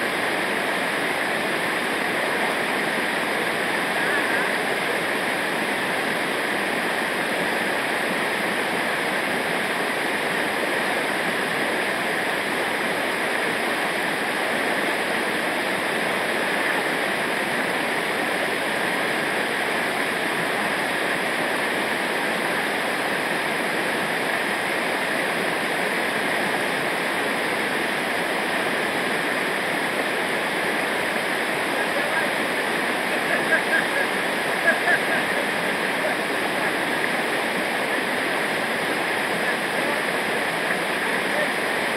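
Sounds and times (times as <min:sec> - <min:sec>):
river water rushing over rocks: 0:00.0 - 0:41.9.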